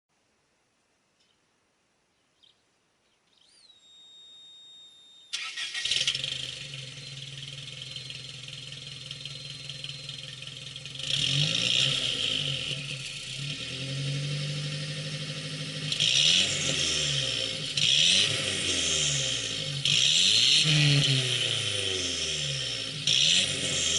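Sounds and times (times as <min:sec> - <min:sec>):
engine throttle blips: 0:05.3 - 0:23.9
car engine cranking and idling: 0:05.4 - 0:23.9.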